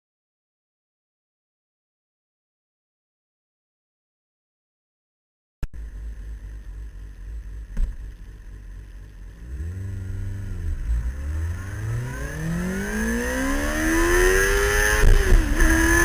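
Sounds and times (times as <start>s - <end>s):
motorcycle engine idling and revving: 5.7s - 16.0s.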